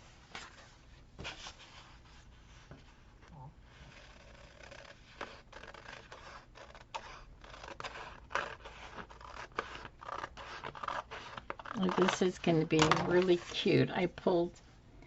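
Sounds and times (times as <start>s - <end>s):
scissors cutting paper: 3.9s - 13.7s
paper rustling: 3.9s - 13.8s.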